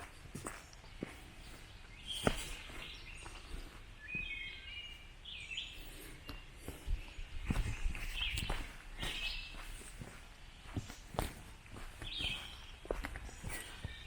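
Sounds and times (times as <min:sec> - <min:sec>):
footsteps on trail: 0:00.0 - 0:05.1, 0:05.7 - 0:14.0
songbirds singing: 0:00.0 - 0:14.0.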